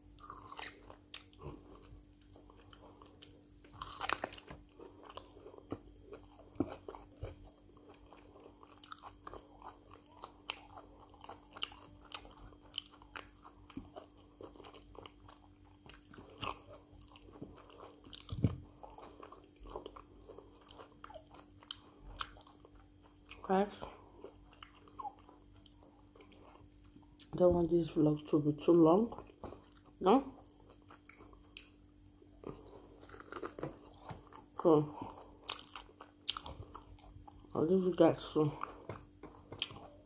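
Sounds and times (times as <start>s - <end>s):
person chewing with mouth smacks: 0.0s - 27.4s, 29.2s - 37.6s, 38.6s - 40.0s
faint steady hum: 0.0s - 40.0s.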